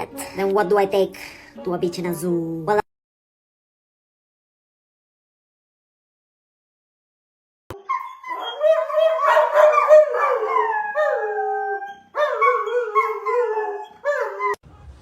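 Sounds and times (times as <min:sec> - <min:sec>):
dog howling: 0:07.8 - 0:14.6.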